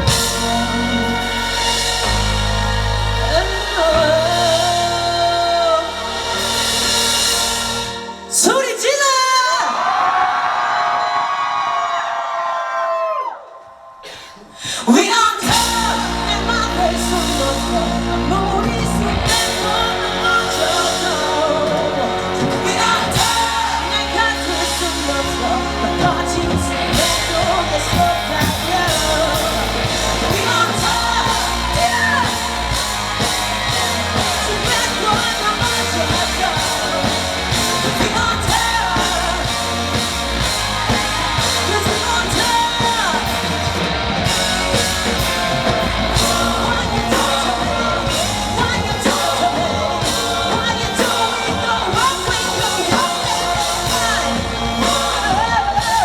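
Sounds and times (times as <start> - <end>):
person singing: 0.0 - 10.0, 14.0 - 56.0
live pop-rock song over speakers: 0.0 - 11.6, 14.6 - 56.0
drum beat: 26.5 - 56.0.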